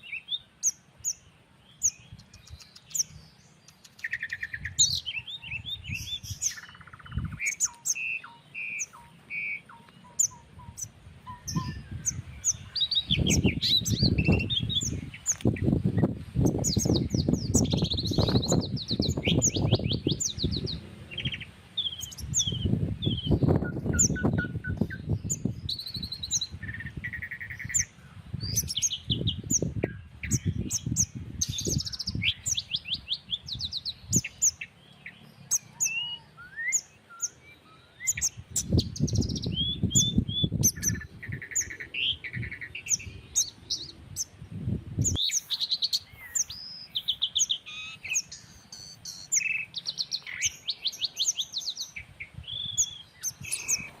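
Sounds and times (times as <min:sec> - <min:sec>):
birds chirping and calling: 0:00.0 - 0:54.0
gusty breeze rumbling: 0:04.2 - 0:07.7, 0:10.3 - 0:34.7, 0:38.1 - 0:47.5, 0:49.9 - 0:54.0.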